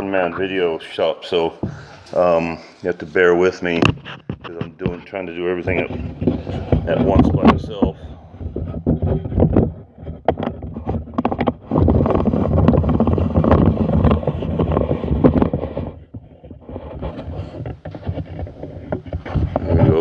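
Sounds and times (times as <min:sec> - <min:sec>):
microphone handling noise: 0:00.0 - 0:20.0
clicks and clatter: 0:01.6 - 0:20.0.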